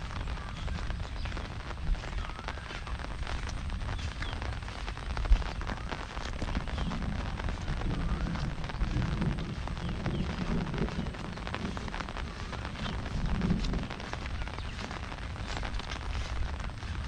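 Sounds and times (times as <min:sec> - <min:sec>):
heavy rain falling: 0:00.0 - 0:17.0
low rumble: 0:00.0 - 0:17.0.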